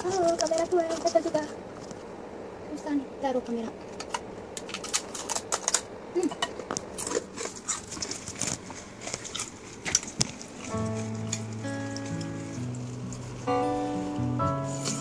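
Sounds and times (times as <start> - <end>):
crisp food crunching: 6.6 - 13.6.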